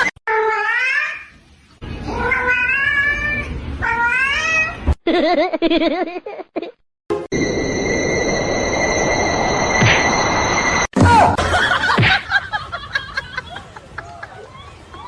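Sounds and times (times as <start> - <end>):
cat meowing: 2.1 - 4.8.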